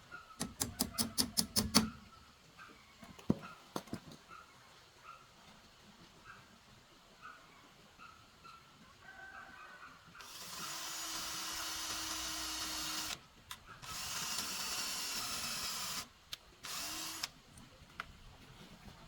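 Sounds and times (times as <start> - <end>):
handheld power tool running: 10.2 - 13.2, 13.8 - 17.3.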